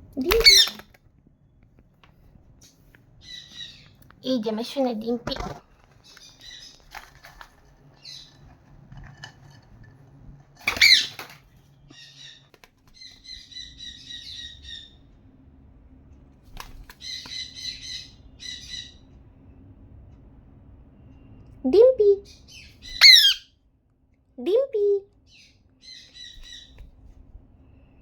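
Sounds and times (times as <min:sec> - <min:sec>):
parrot squawking and chattering: 0:00.2 - 0:01.0, 0:10.6 - 0:11.3, 0:22.0 - 0:23.5.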